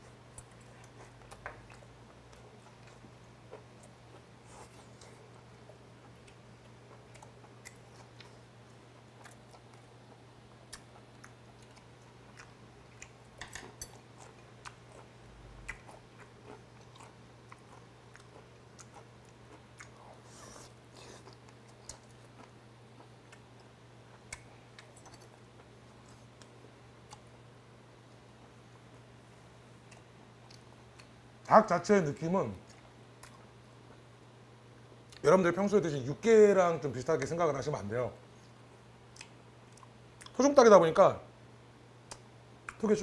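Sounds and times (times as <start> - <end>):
steady low hum: 0.0 - 43.0
person chewing chicken on the bone: 0.3 - 27.3.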